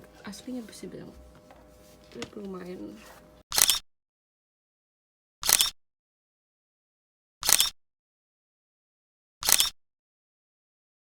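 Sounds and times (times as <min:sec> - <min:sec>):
camera shutter click: 0:03.5 - 0:03.8, 0:05.4 - 0:05.8, 0:07.4 - 0:07.7, 0:09.4 - 0:09.8.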